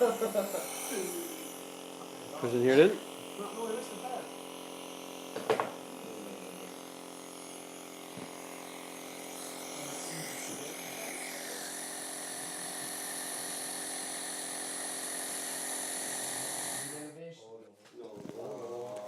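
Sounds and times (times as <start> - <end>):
nebuliser motor hum: 0.0 - 17.2
air hissing: 7.6 - 17.1.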